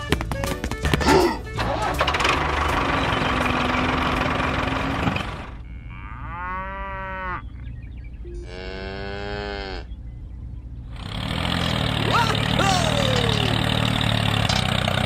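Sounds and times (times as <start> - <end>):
cow mooing: 5.6 - 7.5, 8.4 - 9.9.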